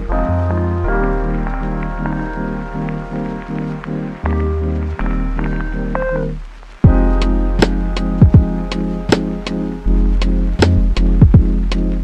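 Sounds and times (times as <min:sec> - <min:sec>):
pitched notes over steady beat: 0:00.0 - 0:12.0
deep drum hit and percussion: 0:06.8 - 0:09.6, 0:10.2 - 0:11.9.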